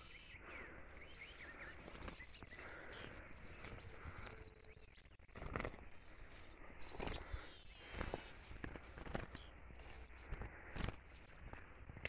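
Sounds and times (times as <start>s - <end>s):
small songbird chirping: 0.0s - 11.9s.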